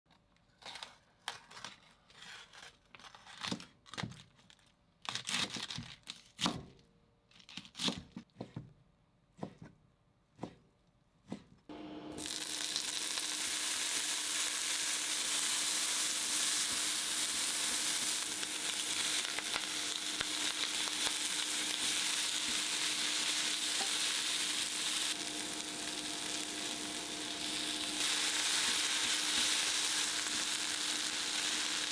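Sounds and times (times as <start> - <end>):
knife cutting cabbage on board: 7.5 - 8.7, 9.3 - 9.8, 10.4 - 11.6
frying in a pan sizzling: 12.0 - 31.9.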